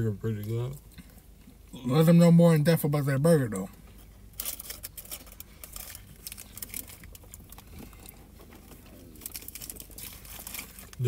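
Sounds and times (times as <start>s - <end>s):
light crinkling: 3.5s - 11.0s
person chewing food: 5.6s - 11.0s.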